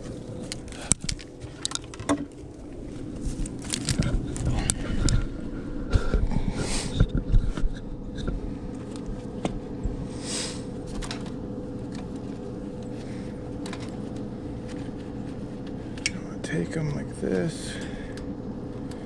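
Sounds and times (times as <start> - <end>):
steady low hum: 0.0 - 19.0
clicks and rustles of zip ties: 0.4 - 2.2, 3.3 - 5.2
short hissing sweep: 10.1 - 10.7.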